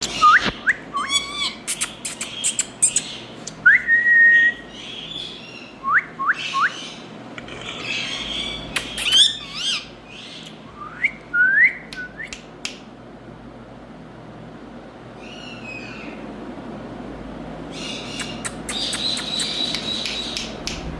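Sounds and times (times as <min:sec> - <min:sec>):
parakeet calling: 0:00.0 - 0:11.2, 0:15.2 - 0:16.3, 0:17.6 - 0:20.8.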